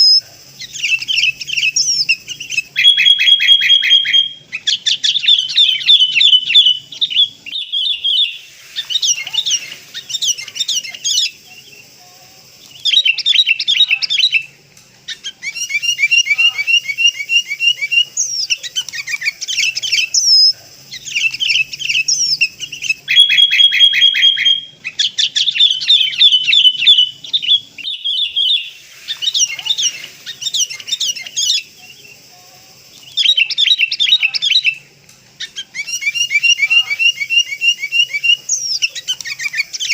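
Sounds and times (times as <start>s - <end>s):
bulbuls chattering calls: 0.0s - 39.9s.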